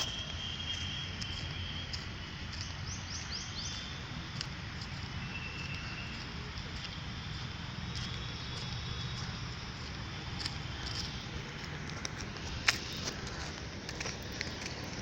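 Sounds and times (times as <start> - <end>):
bird chirping: 0.0 - 4.2, 4.8 - 6.4
low rumble and hiss: 0.0 - 15.0.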